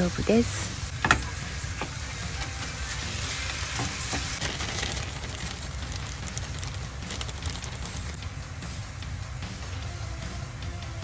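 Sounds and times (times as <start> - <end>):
meat sizzling in a frying pan: 0.0 - 8.2.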